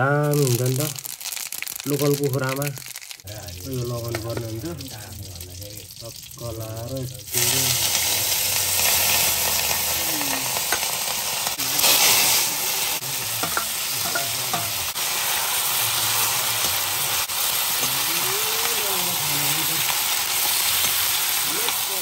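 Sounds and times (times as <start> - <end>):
chicken sizzling in hot oil: 0.0 - 22.0
steel ladle stirring in wok: 13.4 - 15.0.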